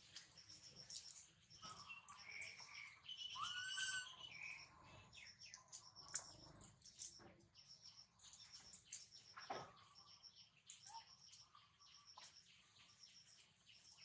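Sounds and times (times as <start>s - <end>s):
birds chirping and whistling: 0.4s - 7.2s.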